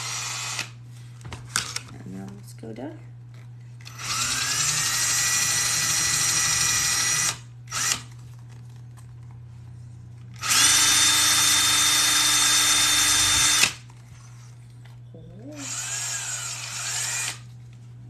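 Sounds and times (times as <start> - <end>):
electric drill whining: 0.0 - 0.8, 3.8 - 8.1, 10.4 - 13.8, 15.6 - 17.5.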